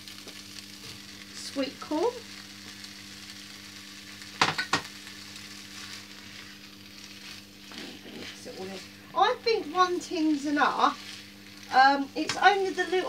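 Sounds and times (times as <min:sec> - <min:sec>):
faint steady hum: 0:00.0 - 0:13.0
food sizzling in a frying pan: 0:00.0 - 0:13.0
stirring in a pan: 0:03.8 - 0:13.0.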